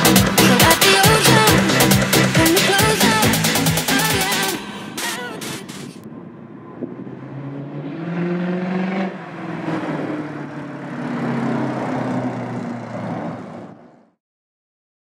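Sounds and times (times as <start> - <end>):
car engine accelerating: 6.0 - 14.2.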